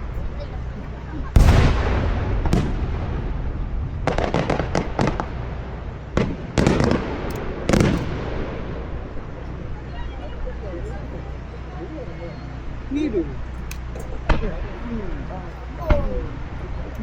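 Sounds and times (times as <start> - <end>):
firework booms: 1.3 - 9.4
crackling firework pops: 1.4 - 5.4, 6.1 - 8.3.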